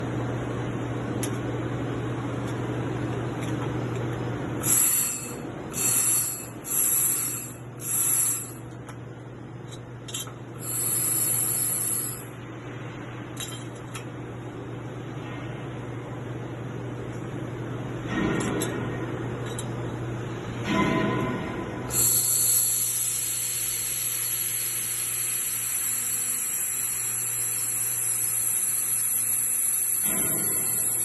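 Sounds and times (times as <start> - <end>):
welding machine humming: 4.0 - 8.9, 10.5 - 12.5, 21.9 - 31.0.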